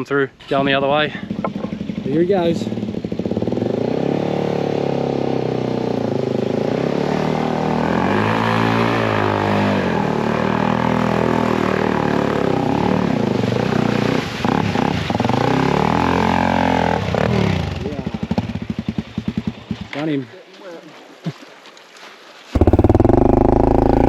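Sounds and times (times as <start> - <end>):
dirt bike engine revving: 1.3 - 13.1, 14.4 - 17.8, 22.6 - 24.0.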